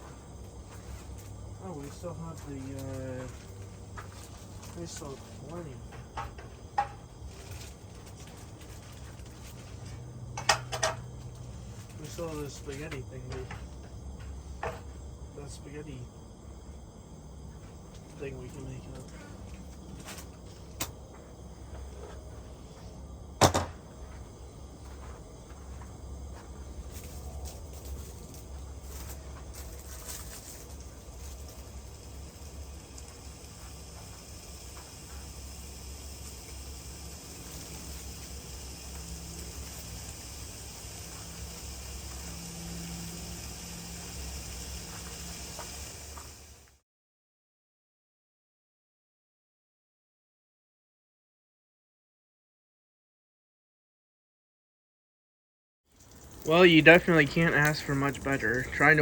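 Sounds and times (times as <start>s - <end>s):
low steady hum: 0.0s - 46.7s
cupboard door knocking shut: 23.4s - 23.8s
food sizzling: 27.0s - 46.8s, 56.0s - 59.0s.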